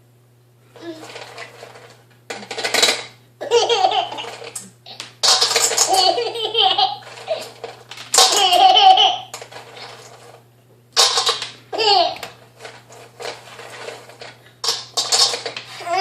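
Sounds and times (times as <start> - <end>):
baby laughing: 3.4 - 5.0, 5.7 - 7.6, 8.2 - 9.3, 11.7 - 12.2, 15.8 - 16.0.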